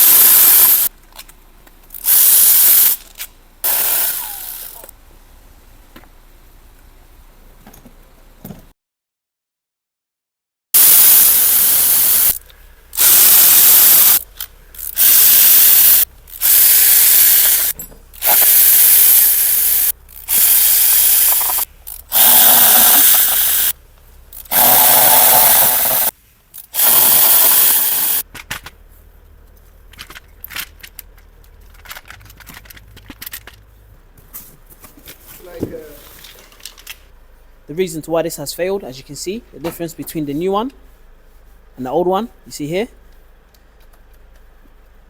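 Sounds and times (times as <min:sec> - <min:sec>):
loud hissing spray bursts: 0:00.0 - 0:00.9, 0:02.0 - 0:03.0, 0:03.6 - 0:04.9, 0:10.8 - 0:14.2, 0:14.8 - 0:28.2
clicks and handling noises: 0:28.3 - 0:35.4.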